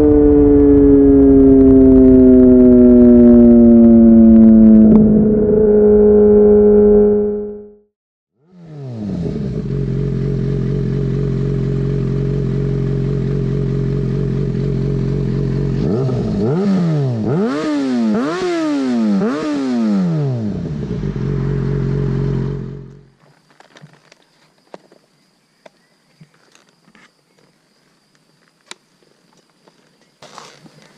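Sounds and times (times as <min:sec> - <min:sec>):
motorcycle engine idling: 0:09.0 - 0:16.6, 0:20.5 - 0:23.2.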